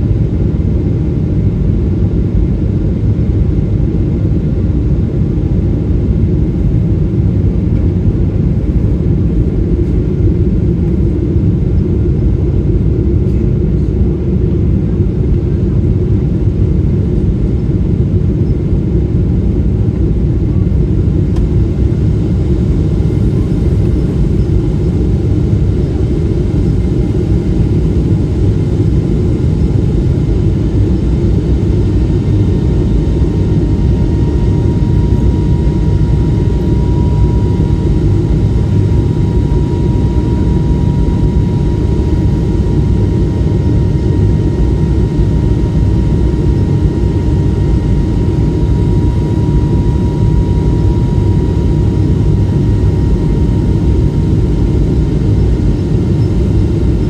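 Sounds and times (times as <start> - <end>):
jet engine cabin rumble: 0.0 - 57.0
faint steady whine: 17.4 - 57.0.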